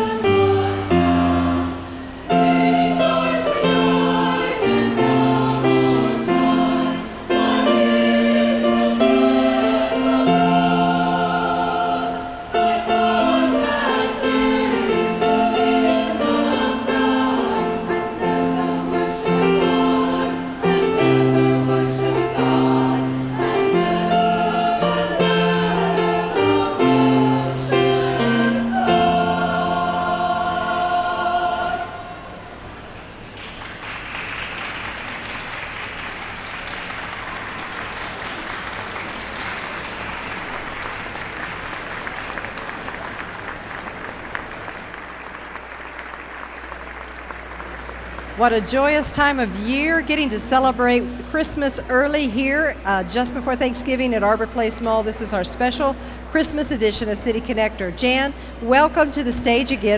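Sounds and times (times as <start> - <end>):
choir singing in harmony: 0.0 - 32.9.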